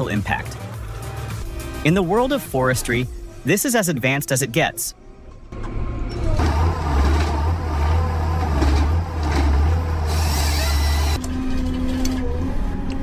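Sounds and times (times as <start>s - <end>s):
diesel engine droning: 5.0s - 13.0s.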